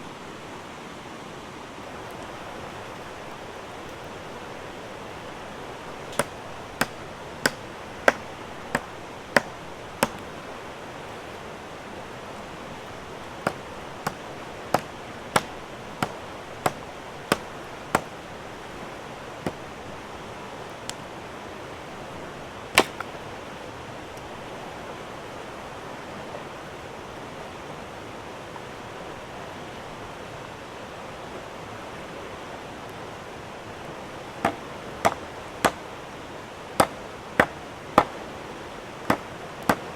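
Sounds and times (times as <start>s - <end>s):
blade chopping wood: 6.0s - 10.4s, 13.3s - 18.3s, 19.4s - 19.7s, 22.8s - 23.2s, 34.4s - 35.9s, 36.8s - 38.2s, 39.0s - 39.9s.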